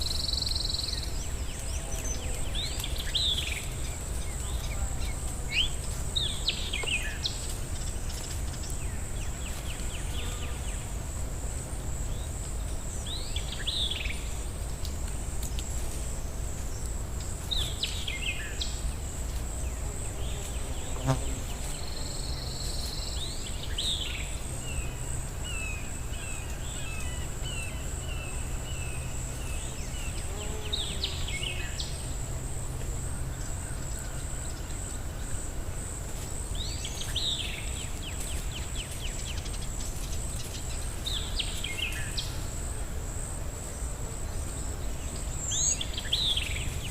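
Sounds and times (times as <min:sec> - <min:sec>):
birds singing: 0:00.0 - 0:10.9, 0:44.4 - 0:46.9
insect trill: 0:00.0 - 0:46.9.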